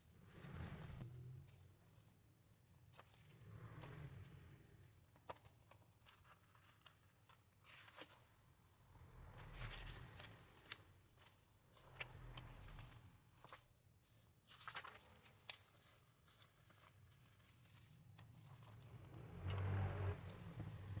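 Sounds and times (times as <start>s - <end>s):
paper pages rustling: 9.6s - 19.3s.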